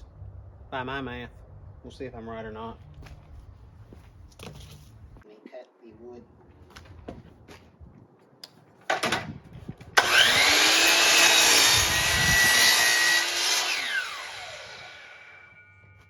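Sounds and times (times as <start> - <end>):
power saw cutting plywood: 10.0 - 15.5.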